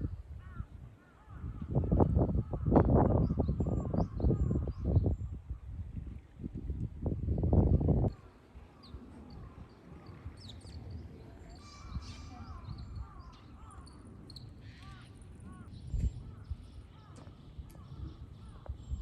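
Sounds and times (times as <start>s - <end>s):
wild birds calling: 8.1s - 19.0s.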